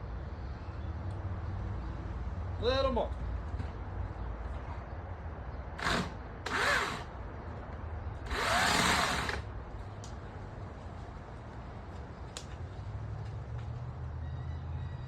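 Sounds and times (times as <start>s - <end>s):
electric chainsaw motor whining: 5.8s - 7.1s, 8.3s - 9.5s.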